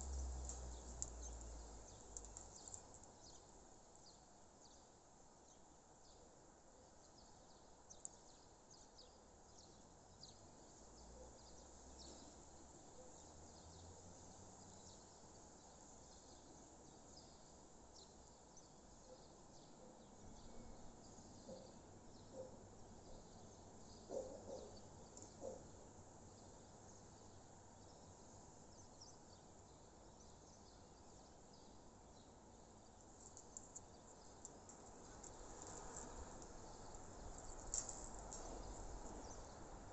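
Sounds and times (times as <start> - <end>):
distant small birds chirping: 0.0 - 4.9, 14.4 - 39.8.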